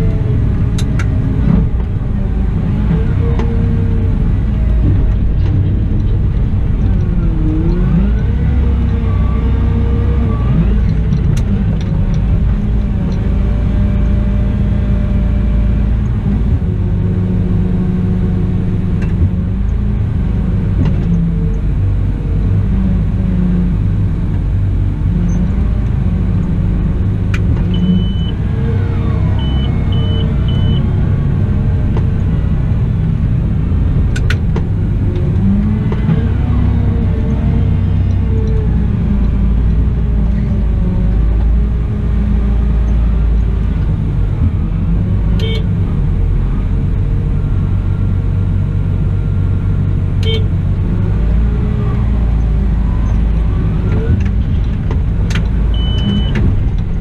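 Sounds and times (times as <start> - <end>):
heavy diesel engine drone: 0.0 - 57.0
short high beeps: 29.4 - 30.9.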